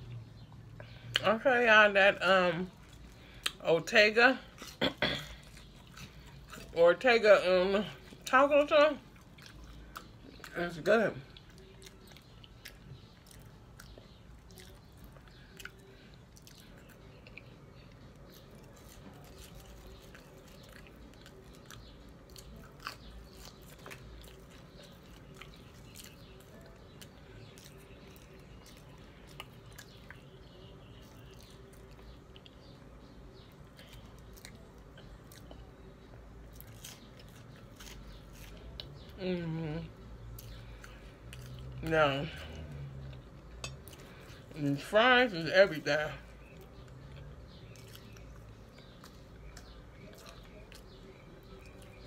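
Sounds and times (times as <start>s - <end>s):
person chewing: 4.4s - 6.8s, 9.0s - 10.5s, 11.3s - 32.8s, 33.5s - 41.8s, 42.4s - 44.6s.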